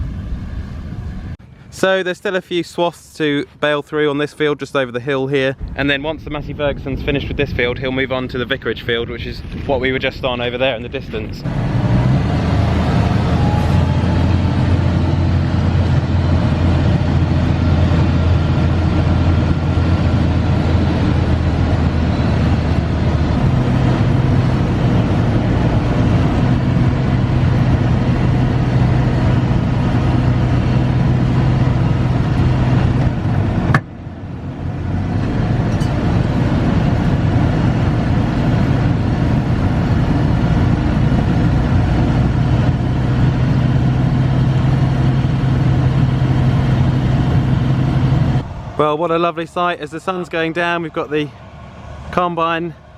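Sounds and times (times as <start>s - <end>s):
farm vehicle engine running: 5.6s - 52.9s.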